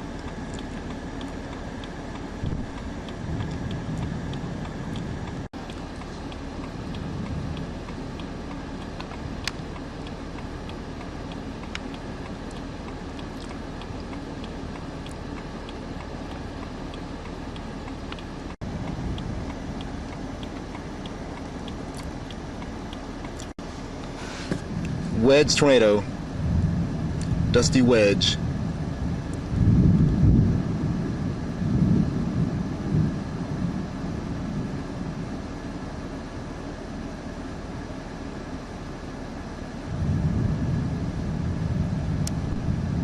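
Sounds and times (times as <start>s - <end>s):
faint regular ticking: 0.0s - 24.2s
vehicle rumble from inside: 0.0s - 43.0s.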